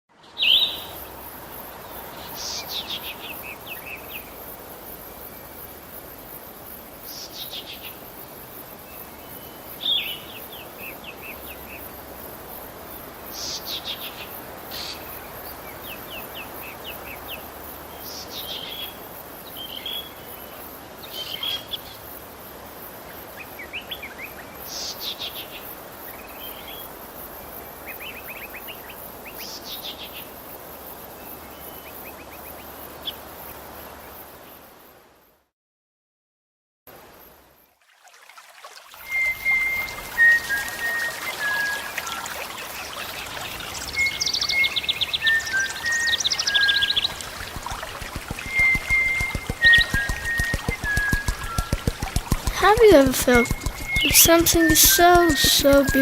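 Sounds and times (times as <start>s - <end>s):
birds singing: 39.2s - 56.0s.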